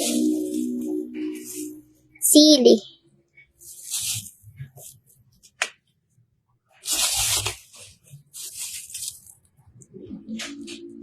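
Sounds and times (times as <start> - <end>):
rustling crinkling handling noise: 3.6 - 5.6, 6.7 - 9.6.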